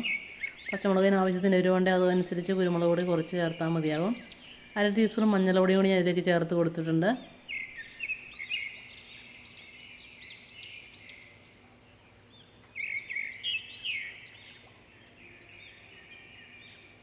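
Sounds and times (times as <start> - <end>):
birds chirping and singing: 0.0 - 6.8, 7.4 - 17.0.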